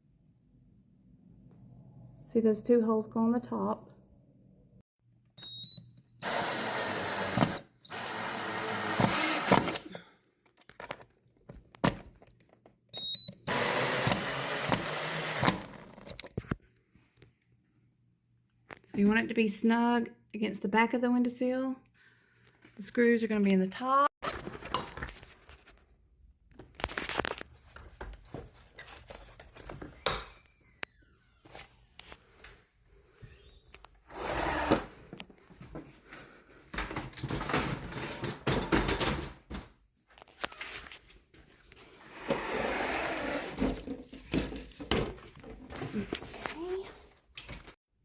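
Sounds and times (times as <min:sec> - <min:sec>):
rustling and scraping: 0:26.6 - 0:29.9.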